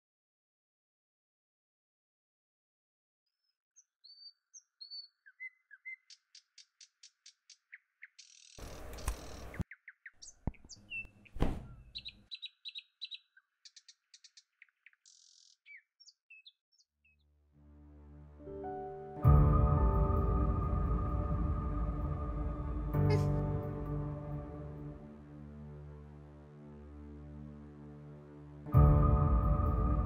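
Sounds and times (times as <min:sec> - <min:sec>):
small birds chirping: 0:03.3 - 0:17.3.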